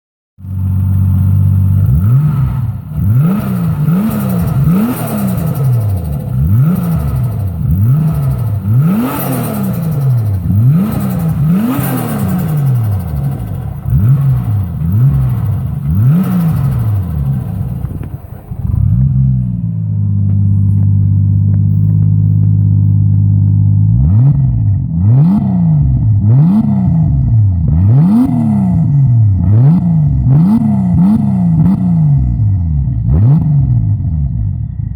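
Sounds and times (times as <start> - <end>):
car engine idling: 0.4 - 24.9
car engine revving: 0.4 - 34.6.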